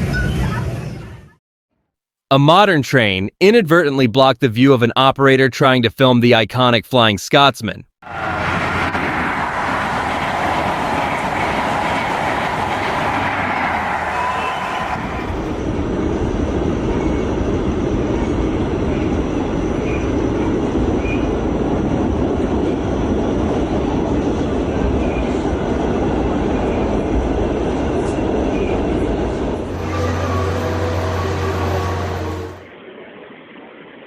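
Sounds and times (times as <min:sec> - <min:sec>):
train rumbling on rails: 0:08.0 - 0:32.8.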